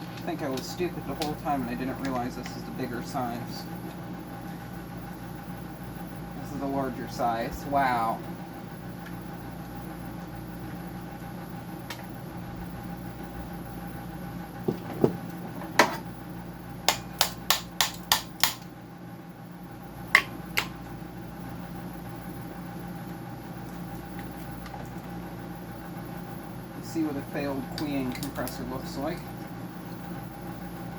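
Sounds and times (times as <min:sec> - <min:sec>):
machine hum: 0:00.0 - 0:30.9
tool knocking on machine parts: 0:14.6 - 0:15.2.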